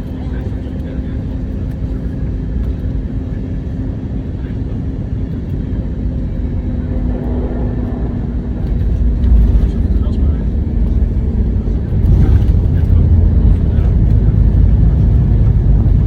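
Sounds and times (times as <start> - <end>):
airplane cabin engine rumble: 0.0 - 16.0
steady low hum: 0.0 - 16.0.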